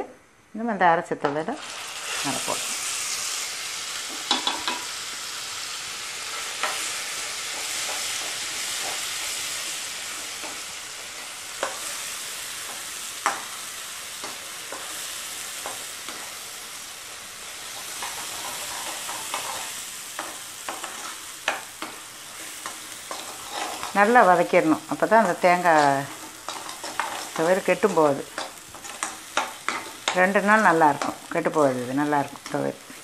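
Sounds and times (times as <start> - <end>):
paste sizzling in hot oil: 1.6 - 33.0
spatula scraping a pan: 17.6 - 24.4, 25.0 - 31.3.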